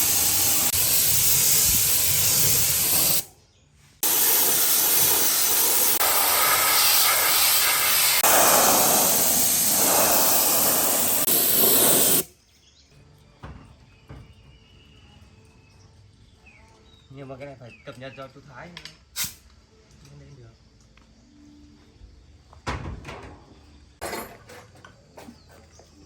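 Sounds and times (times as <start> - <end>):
compressed air hissing: 0.0 - 3.3, 4.0 - 12.3.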